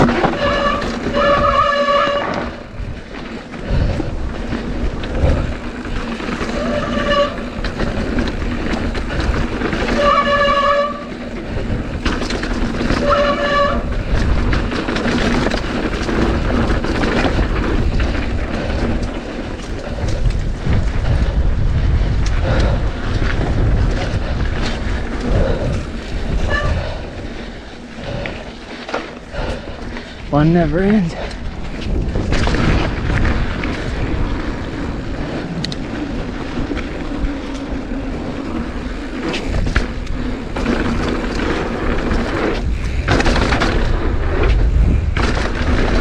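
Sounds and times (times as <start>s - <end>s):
bike rattling and knocking: 0.0s - 46.0s
wind buffeting microphone: 0.0s - 46.0s
short high squeals: 26.4s - 27.0s.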